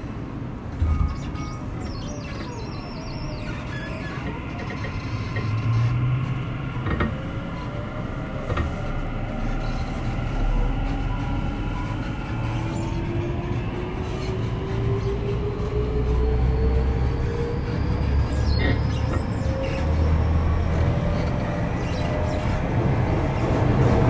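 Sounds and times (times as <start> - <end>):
train wheels rumbling on rail: 0.0 - 24.0
train motor whine rising: 0.8 - 13.6.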